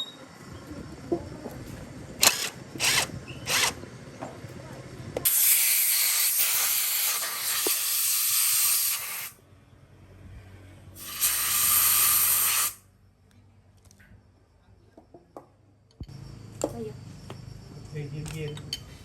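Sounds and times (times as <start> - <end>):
pressurised spray hissing: 11.0 - 12.8.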